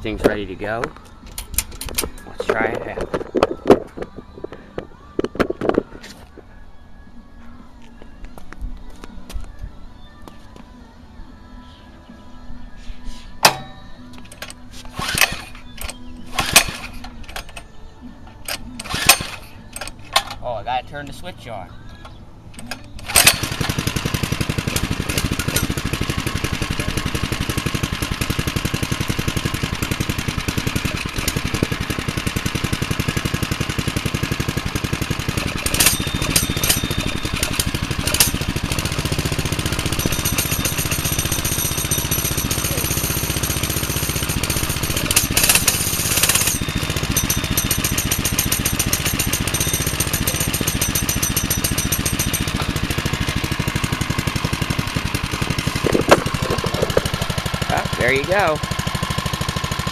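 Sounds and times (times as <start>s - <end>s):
minibike engine starting and running: 13.5s - 20.6s, 21.8s - 59.9s.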